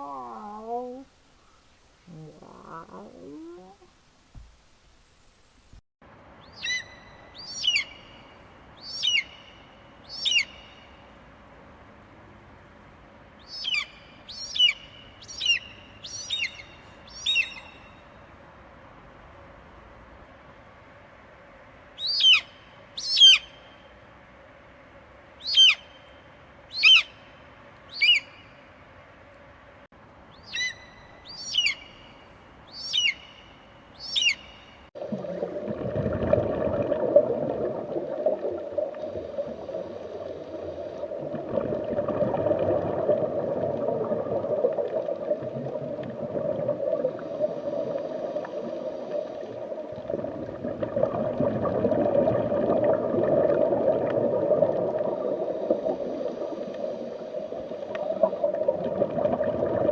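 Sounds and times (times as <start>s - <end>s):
rough low-pitched noise: 2.0s - 4.0s.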